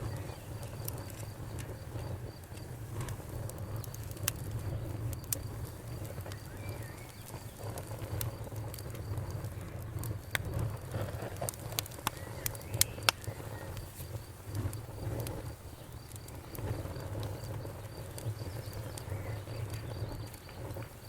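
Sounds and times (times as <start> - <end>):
campfire flames crackling: 0.0 - 21.0
insect chirping: 12.1 - 21.0.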